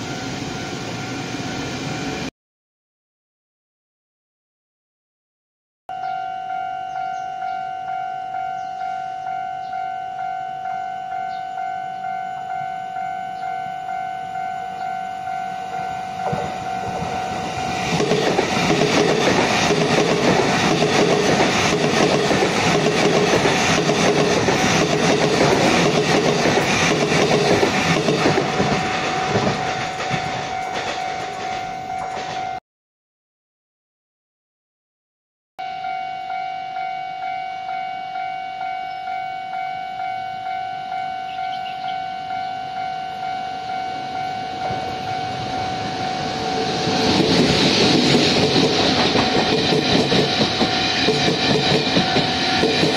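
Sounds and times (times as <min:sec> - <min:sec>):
level-crossing warning bell: 0:00.0 - 0:02.3, 0:05.9 - 0:32.6, 0:35.6 - 0:52.9
train wheels clattering: 0:16.2 - 0:32.6, 0:46.4 - 0:52.9.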